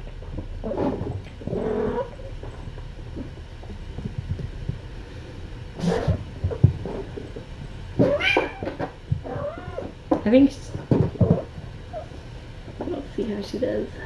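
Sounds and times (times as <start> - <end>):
soft thumps and scuffles: 2.4 - 13.0
cat vocalising: 8.0 - 10.0.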